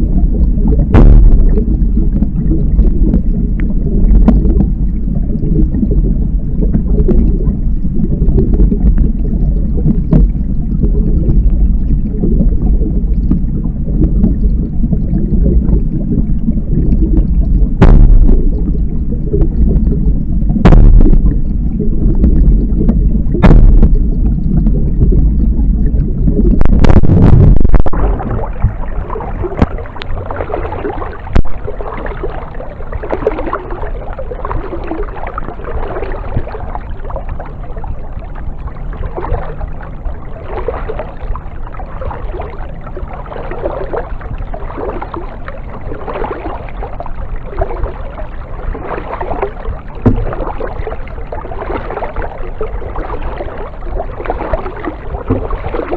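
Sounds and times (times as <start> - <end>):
loud low rumble: 0.0 - 32.3
water splashing and trickling: 0.0 - 55.9
paddle knocking against kayak: 50.0 - 50.5.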